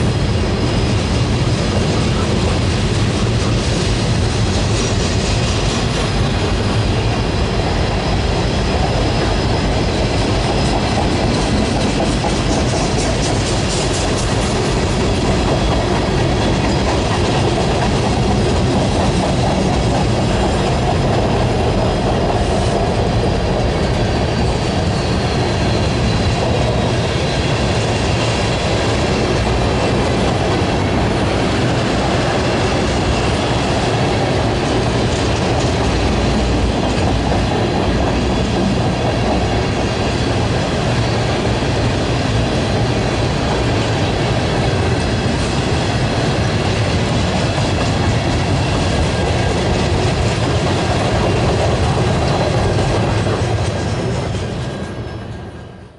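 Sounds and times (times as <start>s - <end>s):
train wheels rumbling on track: 0.0s - 55.9s
high wheel squeal: 23.7s - 28.3s.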